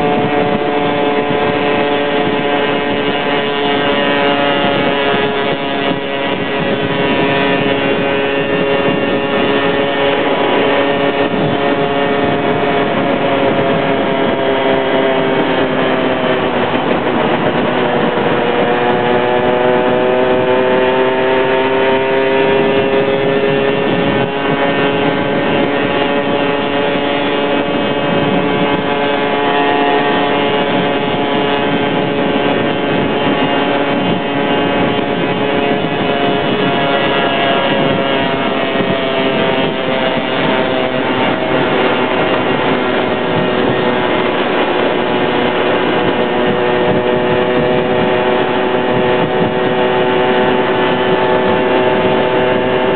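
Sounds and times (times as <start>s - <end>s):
motorcycle engine running hard: 0.0s - 52.9s
wind rush: 0.0s - 52.9s.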